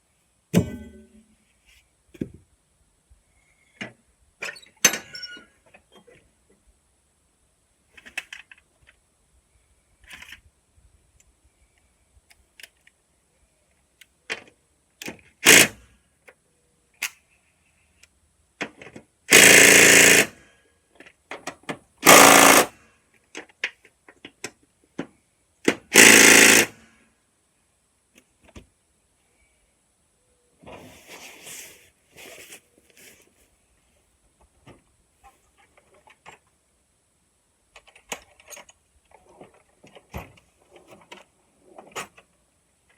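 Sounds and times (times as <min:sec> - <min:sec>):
tools and parts clinking: 0:04.4 - 0:06.2
impact wrench rattling: 0:19.3 - 0:20.3, 0:22.0 - 0:22.7, 0:25.9 - 0:26.7.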